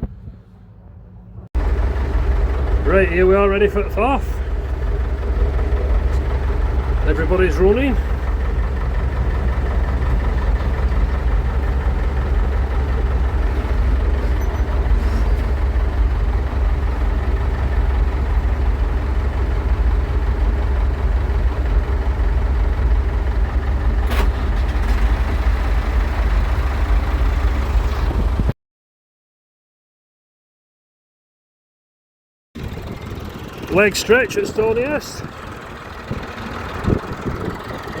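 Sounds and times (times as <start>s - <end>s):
tractor diesel engine running: 0.0s - 28.5s, 32.6s - 38.0s.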